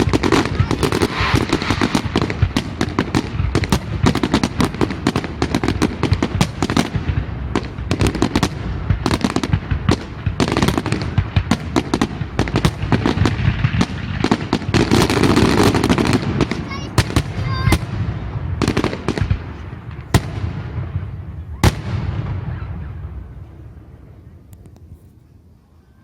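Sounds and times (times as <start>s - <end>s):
fireworks bangs: 0.0s - 24.8s
fireworks crackling: 0.0s - 25.2s.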